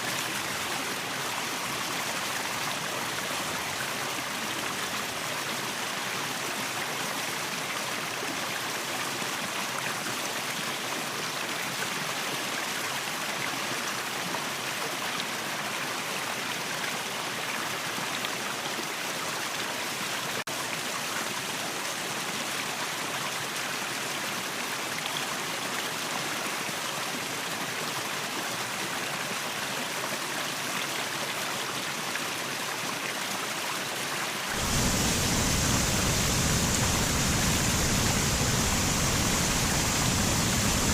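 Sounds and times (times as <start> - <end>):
waterfall rushing: 34.5 - 40.9.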